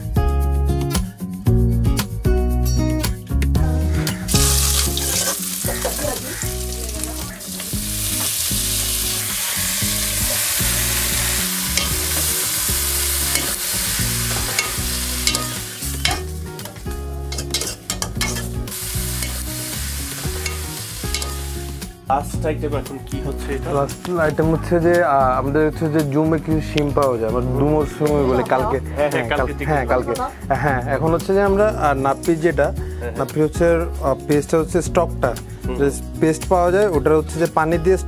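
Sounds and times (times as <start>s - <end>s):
food sizzling in a pot: 3.8s - 21.9s
metal ladle scraping a pot: 4.2s - 6.5s, 11.7s - 12.4s, 13.0s - 21.6s.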